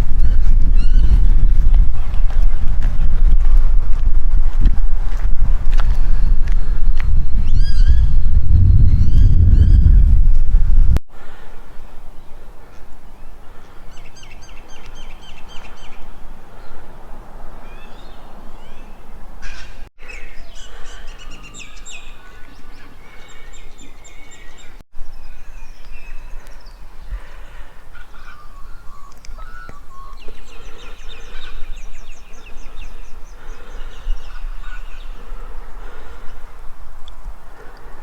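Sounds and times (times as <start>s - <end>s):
birds chirping and trilling: 0.0s - 2.6s, 5.9s - 10.0s, 11.8s - 17.0s, 17.6s - 36.5s
low rumble: 0.0s - 11.0s.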